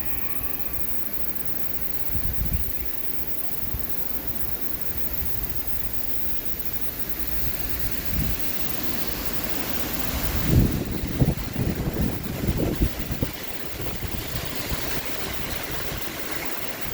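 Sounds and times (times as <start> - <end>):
wind buffeting microphone: 2.1 - 2.8, 7.3 - 16.9
strong wind blowing: 7.3 - 16.9.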